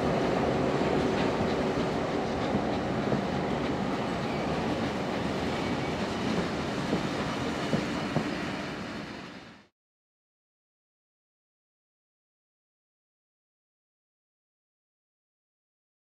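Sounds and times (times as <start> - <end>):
train wheels rumbling: 0.0 - 9.7.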